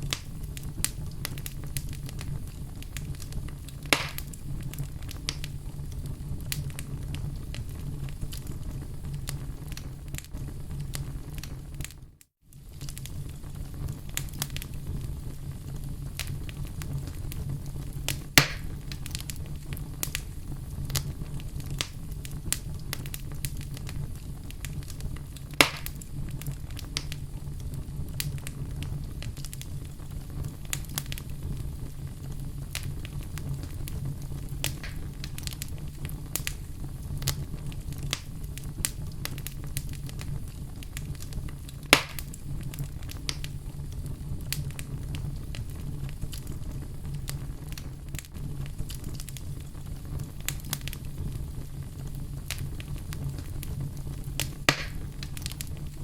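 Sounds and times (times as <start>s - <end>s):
sharp loud pops of fire: 0.0s - 5.5s, 18.1s - 19.4s, 24.6s - 27.2s, 32.7s - 36.6s, 40.9s - 43.5s, 54.3s - 55.9s
wood fire crackling: 0.0s - 56.0s.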